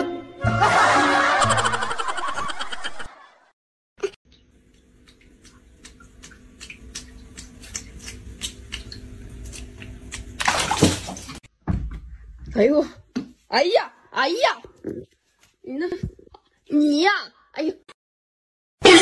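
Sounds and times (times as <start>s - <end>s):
cat pawing water in bucket: 9.8s - 11.4s.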